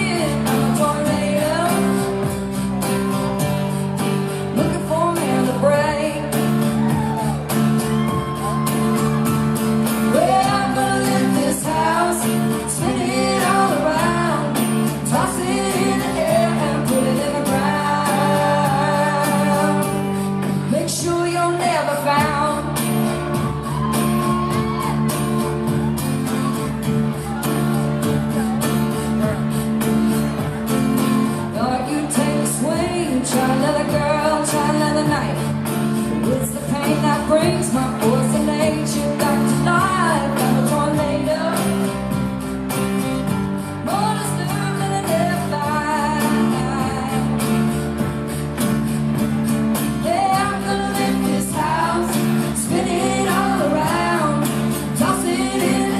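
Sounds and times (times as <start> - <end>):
woman singing: 0.0 - 2.9, 4.0 - 9.1, 9.8 - 25.1, 31.3 - 42.3, 43.6 - 47.9, 49.8 - 55.9
country band with guitar: 0.0 - 55.9.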